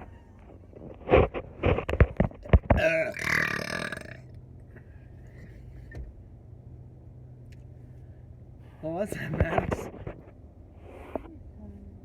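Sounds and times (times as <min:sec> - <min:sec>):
person burping: 0:02.7 - 0:04.2.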